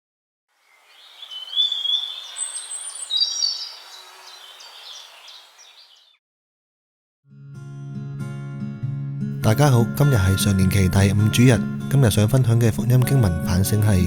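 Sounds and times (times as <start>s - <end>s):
outdoor hiss: 0.5s - 6.0s
birds singing: 0.6s - 6.2s.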